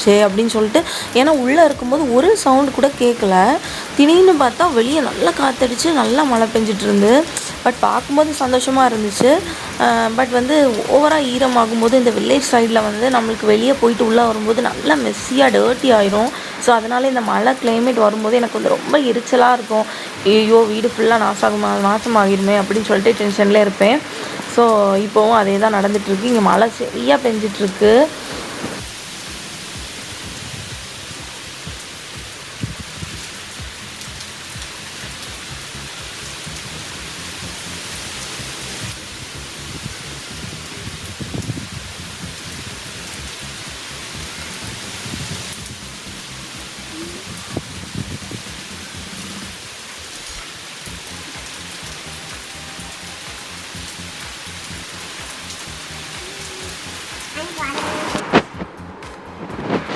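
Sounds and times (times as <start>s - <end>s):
person speaking: 0.0s - 28.7s, 46.7s - 47.8s, 55.7s - 59.0s
heavy rain falling: 0.0s - 59.9s
low thumps: 28.4s - 37.2s.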